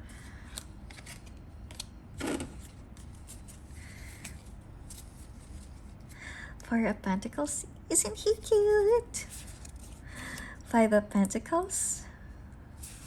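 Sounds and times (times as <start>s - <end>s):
cards clicking and rustling: 0.1s - 6.0s.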